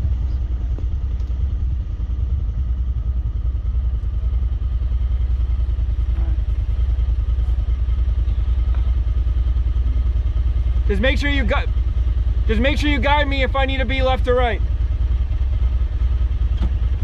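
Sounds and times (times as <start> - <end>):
utility vehicle engine running: 0.0 - 17.0.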